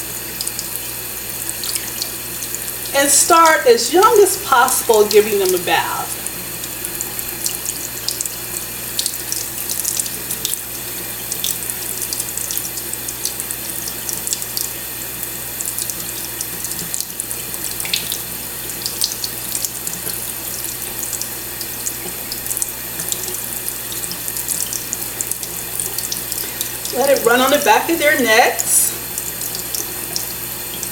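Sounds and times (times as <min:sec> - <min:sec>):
tap water spattering: 0:15.6 - 0:26.9.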